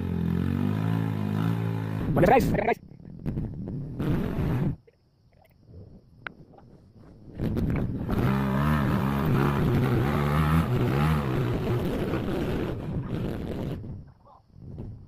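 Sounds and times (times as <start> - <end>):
motorcycle engine revving: 0.0 - 2.6, 3.9 - 4.8, 7.4 - 13.9.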